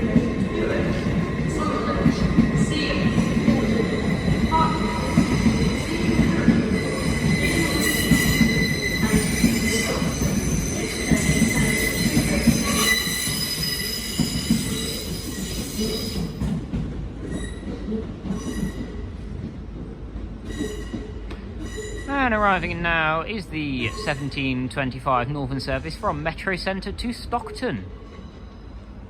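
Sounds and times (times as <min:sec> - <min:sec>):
train wheels squealing on track: 0:00.1 - 0:16.5, 0:17.2 - 0:19.0, 0:20.4 - 0:22.2, 0:23.8 - 0:24.4, 0:28.0 - 0:28.9.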